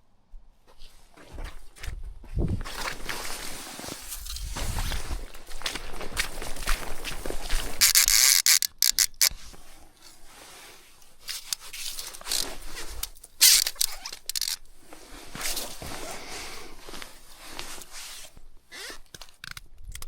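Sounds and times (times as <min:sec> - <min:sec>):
rubbing and scraping noises: 0:00.7 - 0:19.5
small clicks: 0:07.8 - 0:09.3, 0:12.2 - 0:14.6.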